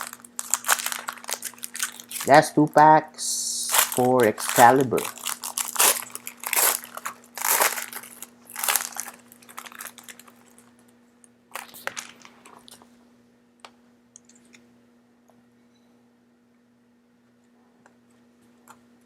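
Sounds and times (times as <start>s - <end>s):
foil wrapper tearing and crinkling: 0.0s - 2.5s, 3.6s - 10.7s, 11.5s - 12.7s.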